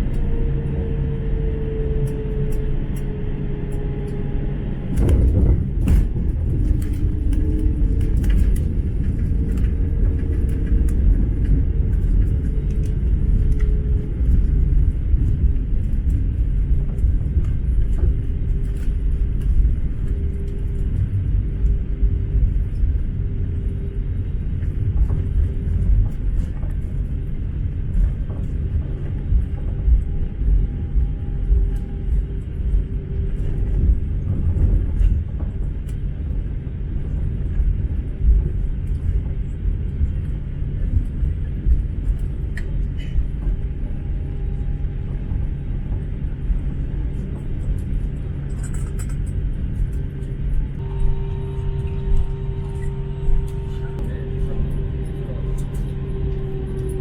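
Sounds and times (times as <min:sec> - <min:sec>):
faint engine hum: 0:00.0 - 0:57.0
wheels rumbling on runway: 0:00.0 - 0:57.0.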